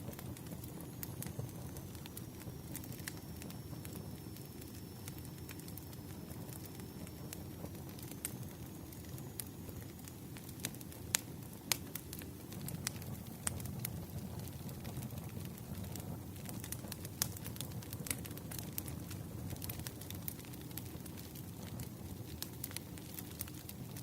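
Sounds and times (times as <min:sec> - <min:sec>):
flame rushing: 0:00.0 - 0:24.0
firewood popping and snapping: 0:14.8 - 0:23.7.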